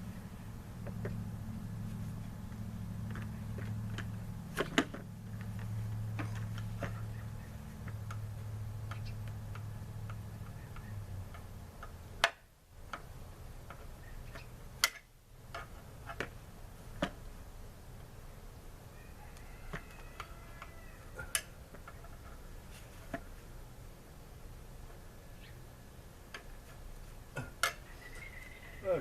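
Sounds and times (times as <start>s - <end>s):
low steady hum: 0.0s - 29.0s
tools clicking and tapping: 7.8s - 16.4s, 27.6s - 27.8s.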